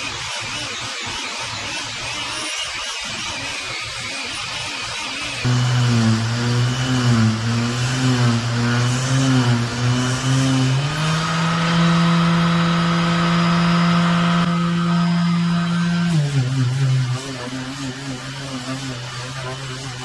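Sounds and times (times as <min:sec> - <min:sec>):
boat engine running: 0:05.5 - 0:20.0.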